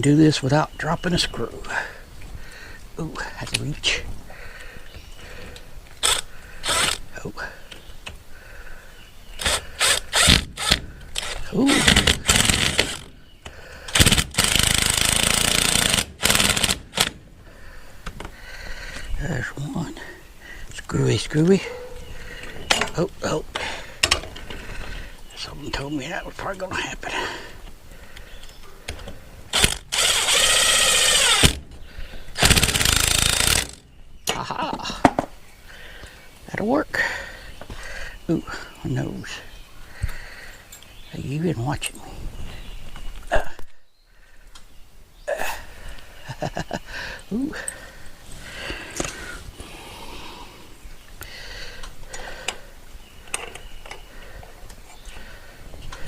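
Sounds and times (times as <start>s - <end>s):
power drill driving screws: 6.0s - 7.0s, 9.4s - 13.1s, 13.9s - 17.2s, 29.5s - 31.6s, 32.4s - 33.8s.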